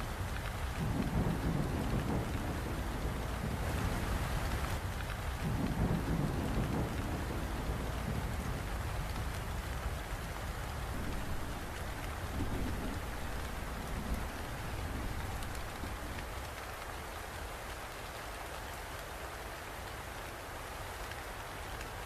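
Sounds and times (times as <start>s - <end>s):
distant thunder rumbling: 0.0s - 16.3s
steady rain: 0.0s - 22.0s.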